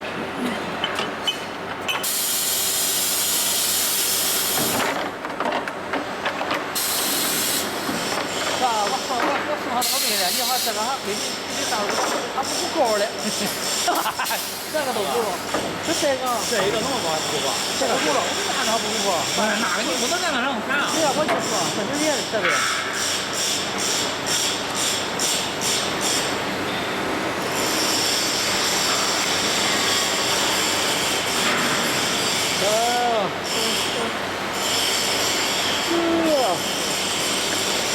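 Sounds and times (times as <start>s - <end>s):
compressed air hissing: 2.0s - 4.8s, 6.8s - 7.9s, 9.8s - 11.6s
welding machine running with hiss: 2.0s - 5.0s, 6.6s - 37.9s.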